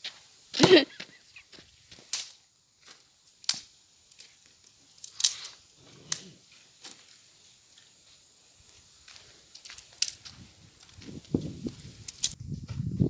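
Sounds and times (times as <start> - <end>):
firewood cracking and snapping: 3.4 - 6.2, 9.5 - 10.3.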